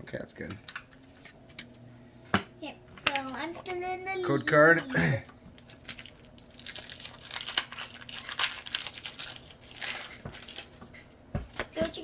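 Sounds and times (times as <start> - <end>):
foil wrapper tearing and crinkling: 5.5 - 10.8.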